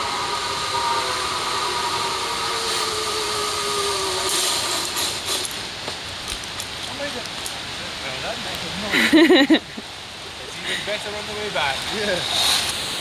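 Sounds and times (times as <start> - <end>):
zip-wire trolley rushing on cable: 0.0 - 7.2, 10.5 - 13.0.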